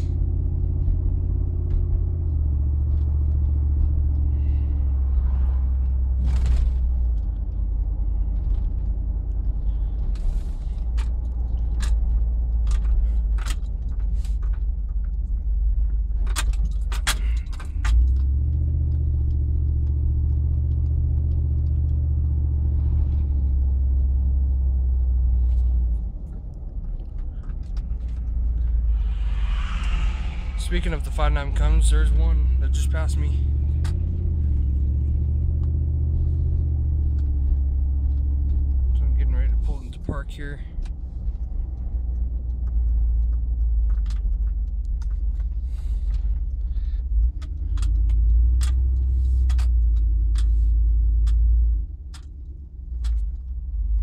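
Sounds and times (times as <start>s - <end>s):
car engine drone inside cabin: 0.0s - 54.0s
sharp clicks and rattles: 5.2s - 28.8s, 30.2s - 54.0s.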